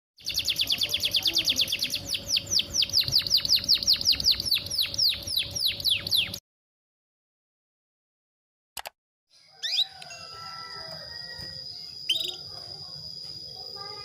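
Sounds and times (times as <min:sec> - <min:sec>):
canary chirping: 0:00.2 - 0:06.4, 0:11.6 - 0:12.6.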